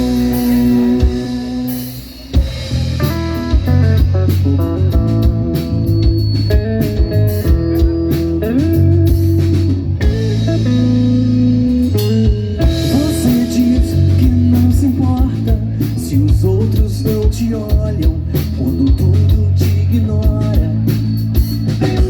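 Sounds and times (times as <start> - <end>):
lead guitar melody: 0.0 - 15.8
bass guitar: 0.0 - 22.0
drum kit: 0.0 - 22.0.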